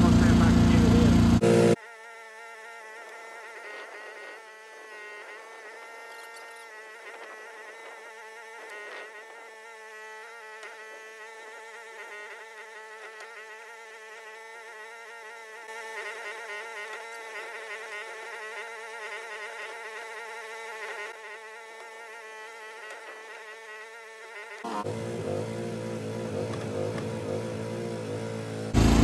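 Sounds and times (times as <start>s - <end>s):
excavator engine and hydraulics: 0.0s - 1.8s, 24.7s - 29.0s.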